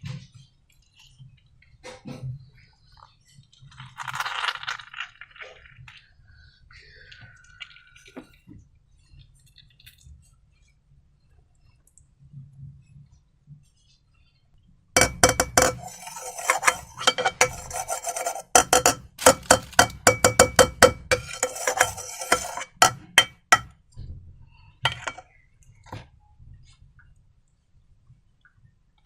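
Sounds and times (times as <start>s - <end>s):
utensil clinking on container: 15.0s - 23.7s, 24.9s - 25.2s.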